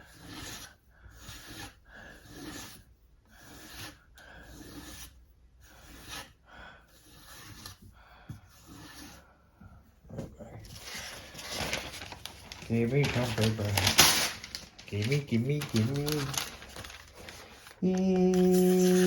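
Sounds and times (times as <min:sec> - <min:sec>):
sharpening stone scraping knife edge: 0:00.1 - 0:02.8, 0:03.4 - 0:07.8.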